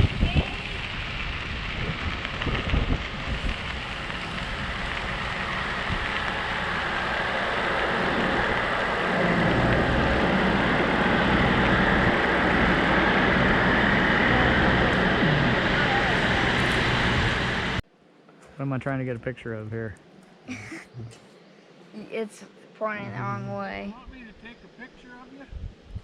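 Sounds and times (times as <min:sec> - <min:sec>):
bicycle tyre noise: 0:00.0 - 0:17.8
low engine hum: 0:00.0 - 0:17.8, 0:23.0 - 0:26.0
wind rushing on microphone: 0:00.0 - 0:17.8, 0:25.4 - 0:26.0.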